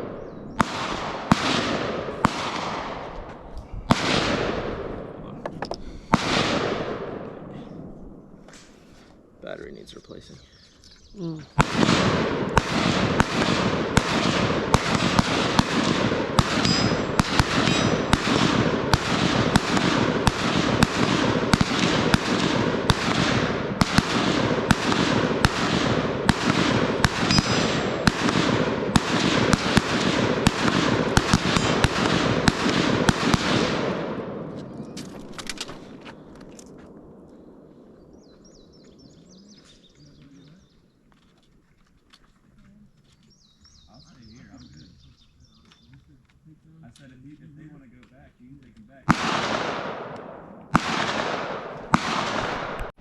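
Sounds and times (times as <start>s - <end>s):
sustained gunfire: 0.0s - 3.3s, 3.9s - 5.3s, 6.0s - 8.3s, 11.6s - 34.6s, 49.0s - 53.0s.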